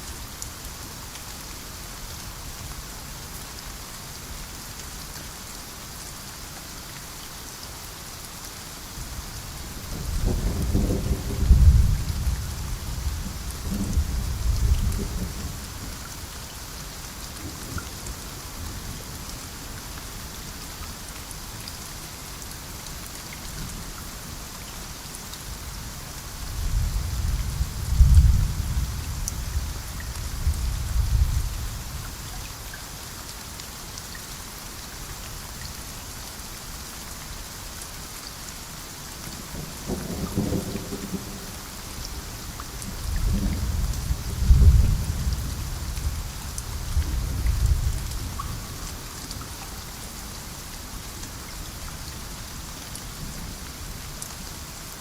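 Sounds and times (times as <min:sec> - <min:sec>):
heavy rain: 0:00.0 - 0:55.0
rolling thunder: 0:10.0 - 0:15.6, 0:26.6 - 0:31.7, 0:43.0 - 0:48.1.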